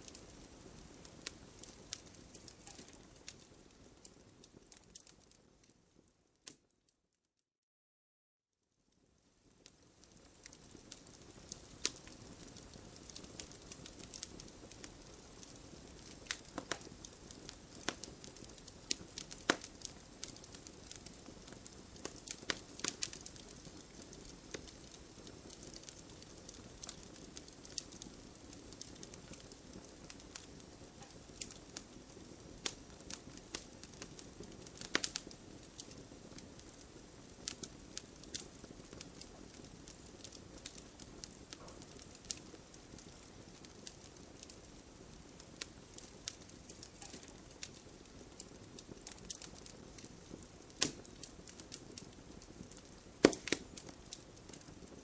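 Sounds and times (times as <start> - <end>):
fire crackling and popping: 0.0 - 6.8, 8.9 - 55.0
soft hiss of burning: 0.0 - 6.8, 8.7 - 55.0.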